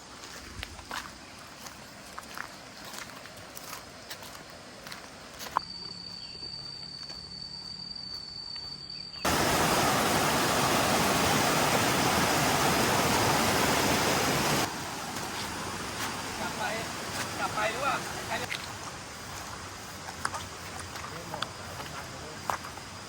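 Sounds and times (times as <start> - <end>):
high insect tone: 0.1 - 23.0
waterfall rushing water: 9.3 - 20.6.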